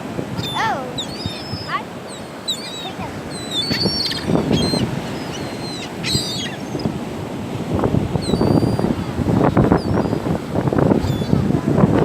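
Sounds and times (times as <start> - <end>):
seagulls calling: 0.3 - 7.1, 8.1 - 10.3, 10.9 - 11.5.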